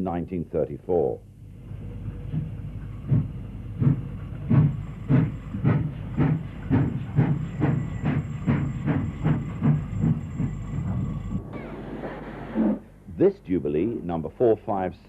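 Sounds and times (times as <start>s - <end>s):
steam locomotive chuffing: 1.5s - 13.1s.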